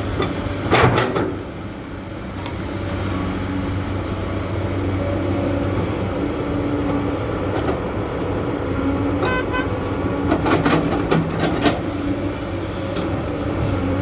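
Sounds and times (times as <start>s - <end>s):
heavy diesel machinery running: 0.0s - 14.0s
horn toots: 9.2s - 9.8s.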